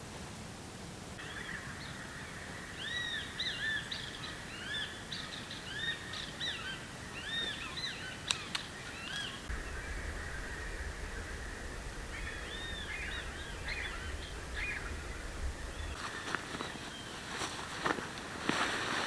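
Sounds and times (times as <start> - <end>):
birds calling: 7.4 - 16.3
high-pitched drone: 9.5 - 16.0.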